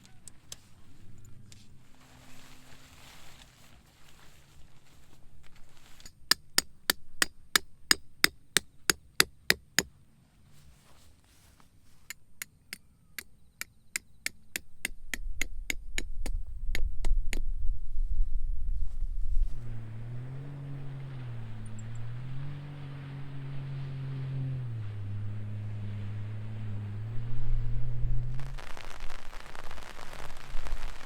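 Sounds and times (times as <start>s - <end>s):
low rumble: 15.8s - 31.0s.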